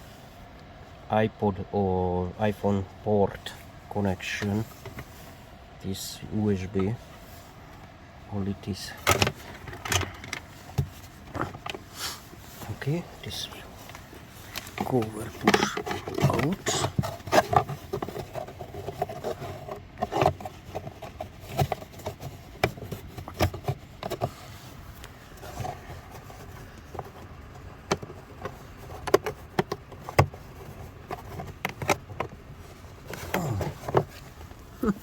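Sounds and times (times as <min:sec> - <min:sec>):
car trim cover clicking and scraping: 0:08.9 - 0:35.0.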